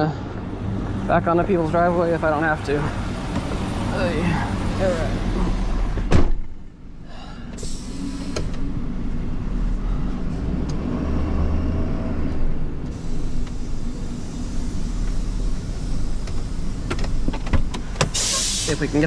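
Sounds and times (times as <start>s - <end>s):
vehicle engine idling: 0.0s - 10.8s, 12.2s - 19.0s.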